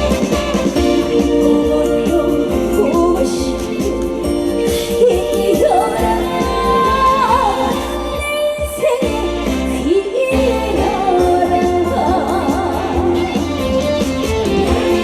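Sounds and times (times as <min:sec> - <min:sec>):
band playing: 0:00.0 - 0:15.0
woman singing with vibrato: 0:00.7 - 0:13.5.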